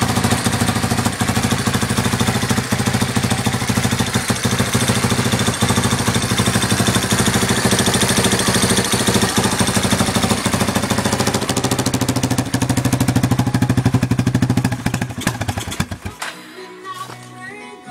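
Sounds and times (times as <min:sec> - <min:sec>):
engine running steadily: 0:00.0 - 0:16.2
music: 0:15.8 - 0:17.9.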